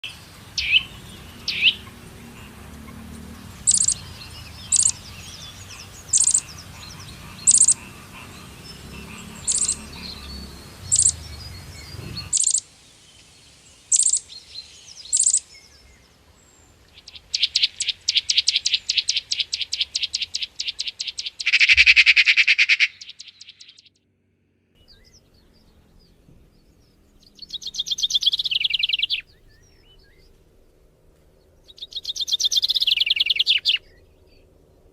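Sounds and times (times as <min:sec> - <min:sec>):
bird rapid trills: 0:00.0 - 0:12.7, 0:13.9 - 0:14.3, 0:14.9 - 0:15.5, 0:17.0 - 0:24.0, 0:27.2 - 0:30.4, 0:31.6 - 0:33.9
low background noise: 0:00.0 - 0:34.9
bird sharp high call: 0:21.4 - 0:23.9.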